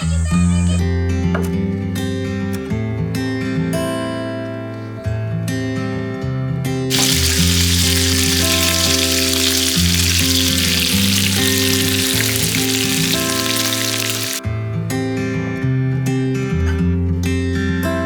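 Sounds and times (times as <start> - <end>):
food sizzling in a pan: 6.9 - 14.4.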